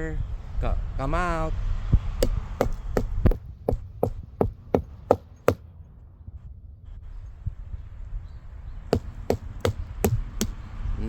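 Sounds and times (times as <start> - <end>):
knocking on hollow tree trunk: 2.2 - 5.6, 9.0 - 10.6.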